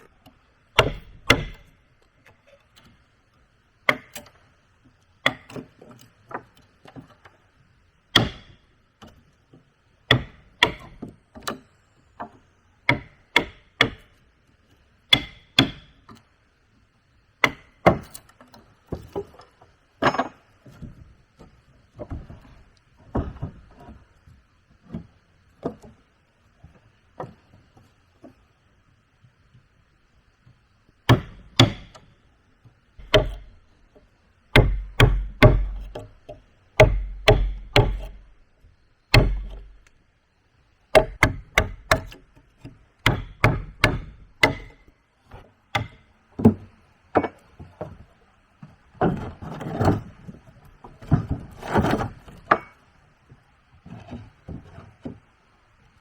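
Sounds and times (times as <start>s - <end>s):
hand tool striking wood: 0.8s - 1.7s, 3.9s - 4.3s, 5.2s - 5.7s, 8.1s - 9.2s, 10.1s - 11.1s, 12.9s - 14.1s, 15.1s - 15.9s, 17.4s - 18.2s, 31.1s - 32.1s, 33.0s - 33.6s, 34.5s - 38.4s, 39.1s - 39.9s, 40.9s - 44.9s, 45.7s - 46.6s.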